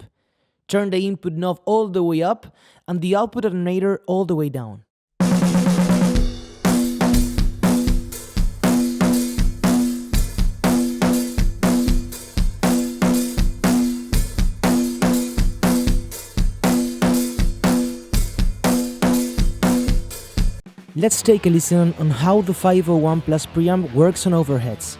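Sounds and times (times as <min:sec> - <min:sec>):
distorted drum kit beat: 0:05.2 - 0:23.9.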